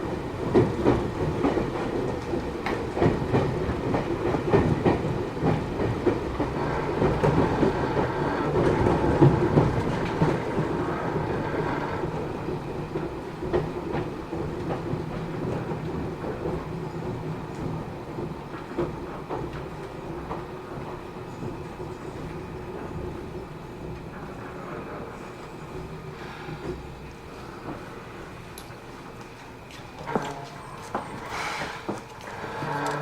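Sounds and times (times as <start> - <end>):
train running rumble: 0.0 - 33.0
wheels clicking over rail joints: 25.8 - 33.0.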